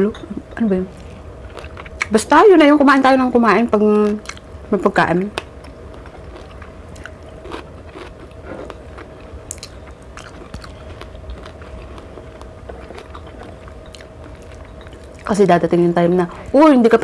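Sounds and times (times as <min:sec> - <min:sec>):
faint steady hum: 0:00.0 - 0:17.0
person chewing food: 0:01.0 - 0:02.1, 0:05.4 - 0:15.3.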